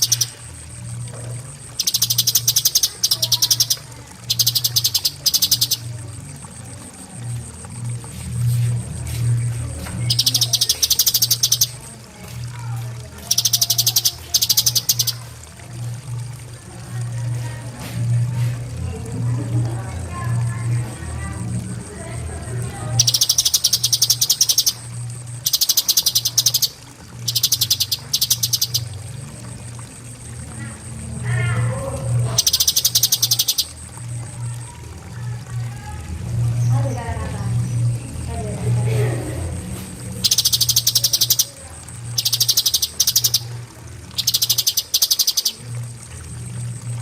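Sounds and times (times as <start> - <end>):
bird singing rapid trills: 0.0 - 6.5, 9.4 - 15.3, 22.6 - 34.7, 40.2 - 47.0
faint steady high tone: 0.0 - 17.6, 18.3 - 39.4, 40.2 - 47.0
steady low hum: 0.0 - 47.0.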